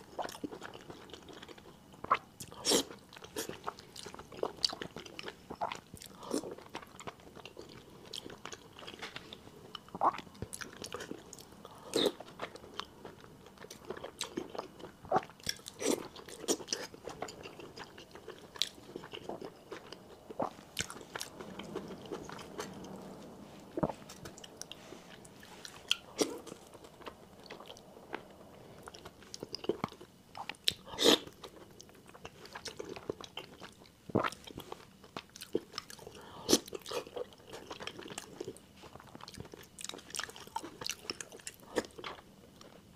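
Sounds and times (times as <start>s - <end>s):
close chewing with wet mouth sounds: 0.0s - 42.9s.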